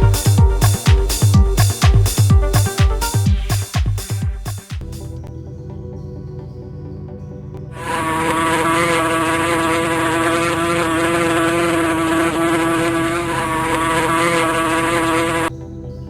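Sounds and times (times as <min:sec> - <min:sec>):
insect buzzing drone: 0:07.8 - 0:15.6.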